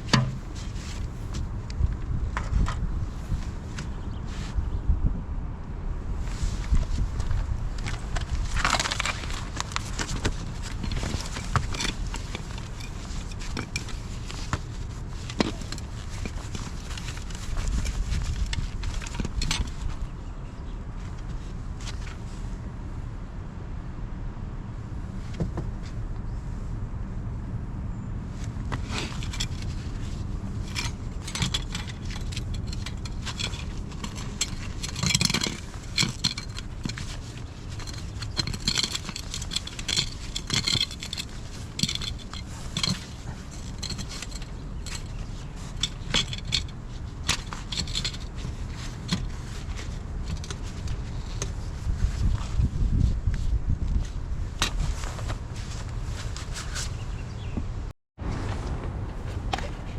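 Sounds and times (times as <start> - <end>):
metal tools clinking and scraping: 0.0 - 1.5, 8.6 - 19.9, 28.8 - 51.6, 59.1 - 59.9.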